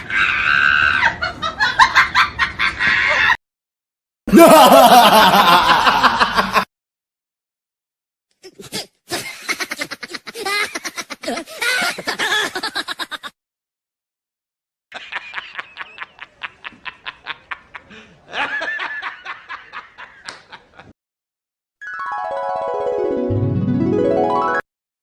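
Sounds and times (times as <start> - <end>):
rapid pulsing laughter: 4.3 - 6.7, 9.1 - 13.4.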